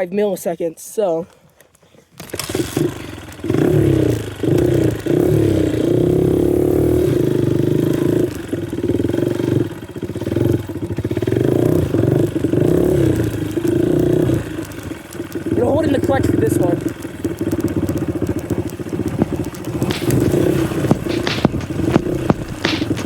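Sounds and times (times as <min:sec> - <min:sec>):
pit bike engine revving: 0:02.2 - 0:23.0.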